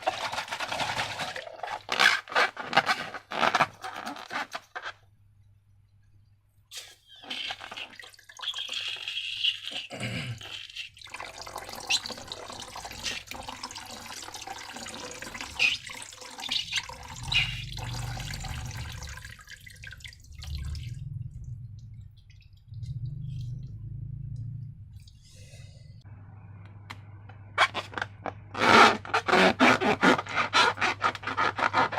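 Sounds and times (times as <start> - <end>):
slime squelching and dripping: 10.6 - 23.8.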